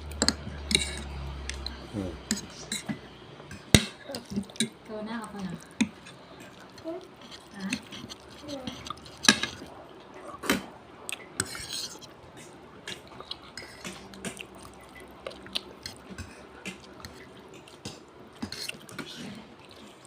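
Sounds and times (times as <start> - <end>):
utensils scraping a plate: 0.1 - 3.7, 5.6 - 9.7, 11.4 - 12.5.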